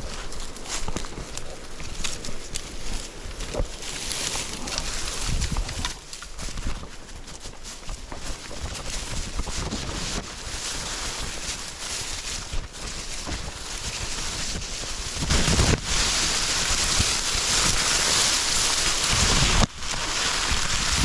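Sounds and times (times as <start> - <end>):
dry leaves rustling underfoot: 0.0 - 21.0
wind buffeting microphone: 0.0 - 21.0.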